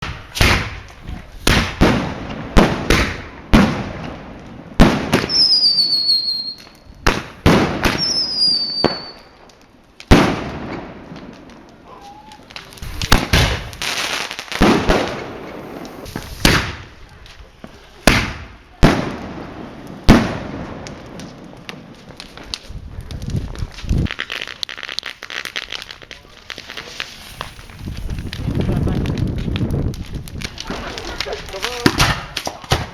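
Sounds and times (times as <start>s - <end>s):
whistling rockets: 0.0s - 3.9s, 4.8s - 9.4s, 11.7s - 17.2s, 18.0s - 20.6s, 24.0s - 32.9s
fireworks bangs with crackling: 0.0s - 32.9s.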